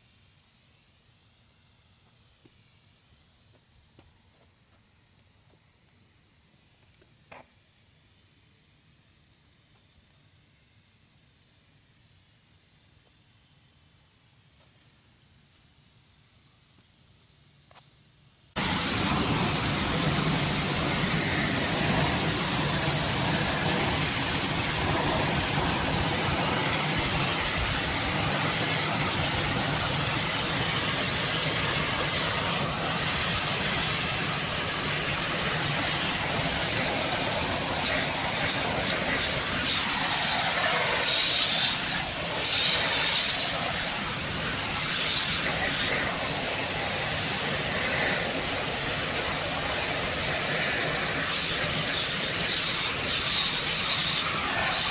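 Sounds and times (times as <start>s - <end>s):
pressure washer spraying: 18.6s - 54.9s
thin high whine: 18.6s - 54.9s.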